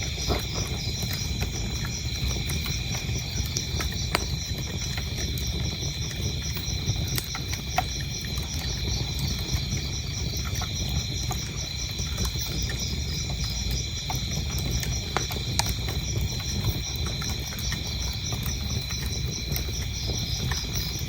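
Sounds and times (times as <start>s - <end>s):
crickets chirping: 0.0s - 21.0s
wood fire crackling: 0.0s - 21.0s.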